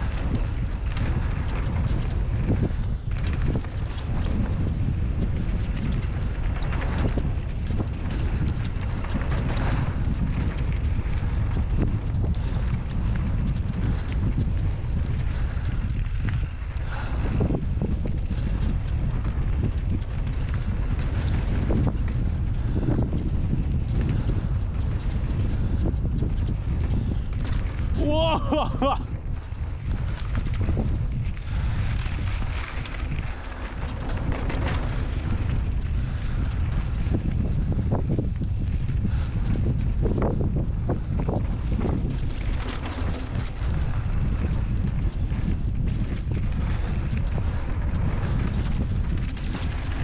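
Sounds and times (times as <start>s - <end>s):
bicycle rattling on dirt trail: 0.0s - 50.0s
wind buffeting microphone: 0.0s - 50.0s.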